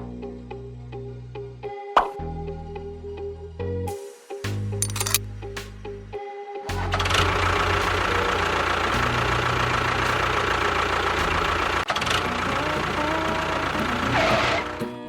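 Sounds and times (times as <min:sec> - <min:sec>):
engine running: 0:06.8 - 0:14.9.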